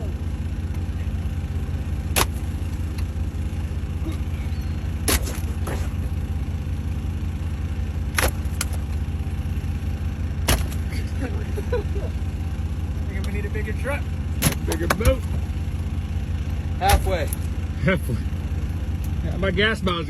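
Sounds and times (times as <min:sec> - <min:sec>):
vehicle engine idling: 0:00.0 - 0:20.0
sharp thuds: 0:02.1 - 0:02.6, 0:05.0 - 0:06.1, 0:08.1 - 0:08.9, 0:10.4 - 0:10.9, 0:14.4 - 0:15.5.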